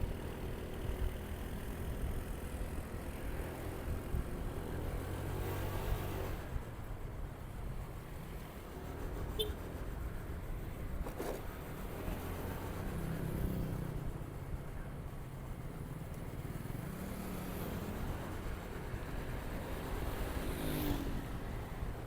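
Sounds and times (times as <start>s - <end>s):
road and wind noise: 0.0s - 22.0s.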